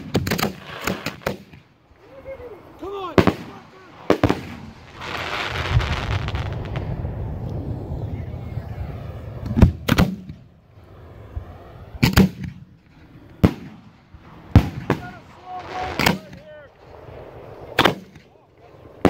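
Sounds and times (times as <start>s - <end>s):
firework shells bursting: 0.0s - 1.8s.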